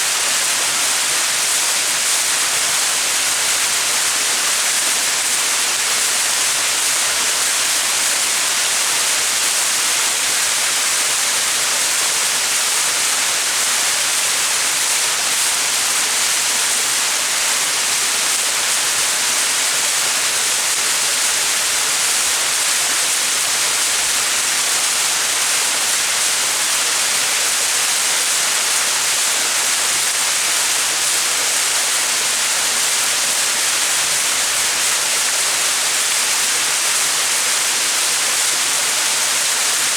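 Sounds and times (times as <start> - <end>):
waterfall splashing: 19.5 - 39.9.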